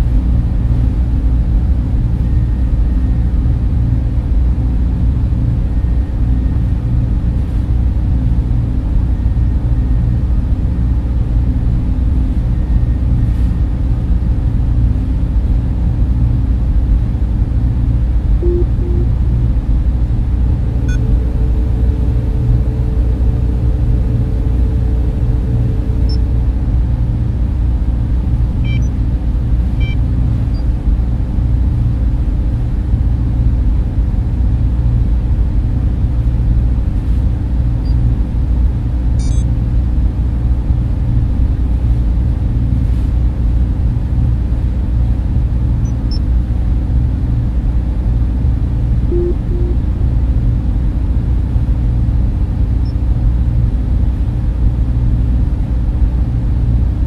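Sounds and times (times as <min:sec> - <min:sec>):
cooling fans rumbling: 0:00.0 - 0:57.0
steady hum: 0:00.0 - 0:57.0
faint held tone: 0:18.4 - 0:19.5, 0:20.5 - 0:26.6, 0:49.1 - 0:50.0.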